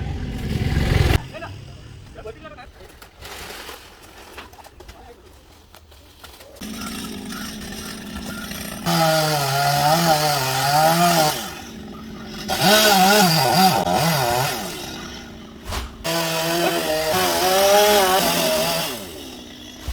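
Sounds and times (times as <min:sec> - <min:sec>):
chainsaw cutting into tree: 0:06.6 - 0:19.9.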